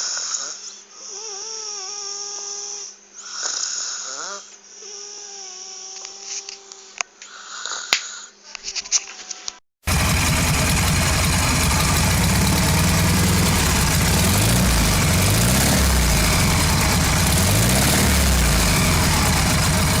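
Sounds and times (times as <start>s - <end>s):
car engine idling loudly: 9.9s - 20.0s.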